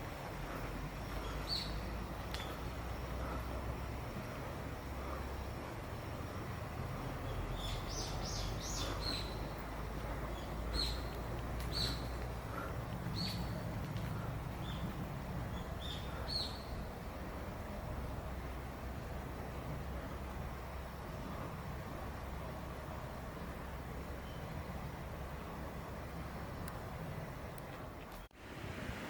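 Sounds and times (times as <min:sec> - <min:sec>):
low background rumble: 0:00.0 - 0:28.0
small bird chirping: 0:07.2 - 0:12.3.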